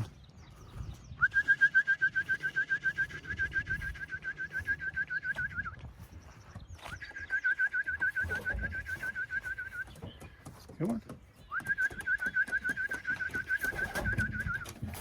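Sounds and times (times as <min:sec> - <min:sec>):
person whistling warbling call: 0:01.2 - 0:05.8, 0:07.0 - 0:09.8.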